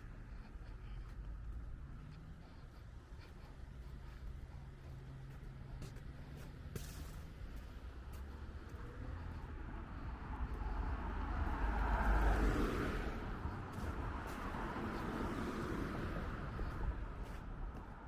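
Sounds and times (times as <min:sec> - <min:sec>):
car passing by: 0:04.4 - 0:18.0.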